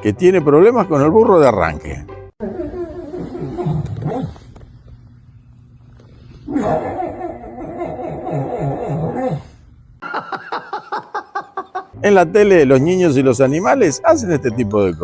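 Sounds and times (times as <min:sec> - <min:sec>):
dog wheezing: 0:02.4 - 0:04.6, 0:06.0 - 0:09.7.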